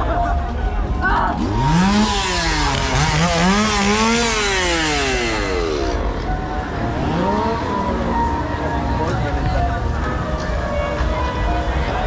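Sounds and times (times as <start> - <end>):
chainsaw engine revving: 1.3 - 6.1, 6.9 - 7.8.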